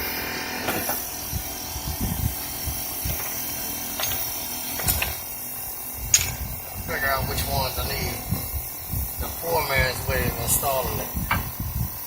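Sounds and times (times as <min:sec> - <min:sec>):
metal pieces clinking: 0:03.2 - 0:05.3.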